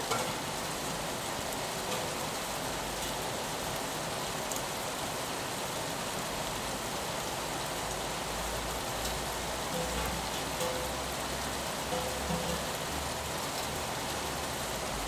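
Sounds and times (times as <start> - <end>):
rain on window glass: 0.0 - 15.0.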